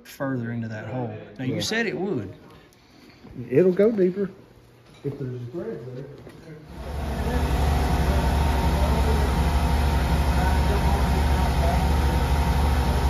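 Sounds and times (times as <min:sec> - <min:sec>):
machine humming with fast pulse: 0:06.7 - 0:13.0.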